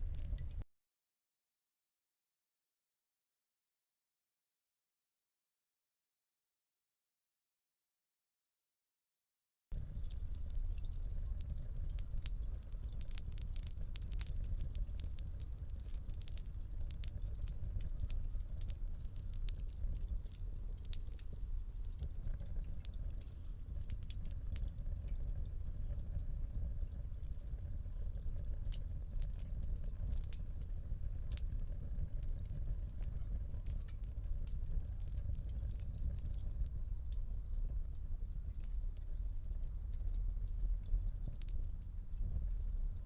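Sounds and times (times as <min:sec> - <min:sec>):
low rumble of burning logs: 0:00.0 - 0:00.6, 0:09.7 - 0:43.0
wood fire crackling: 0:00.0 - 0:00.6, 0:09.7 - 0:43.0.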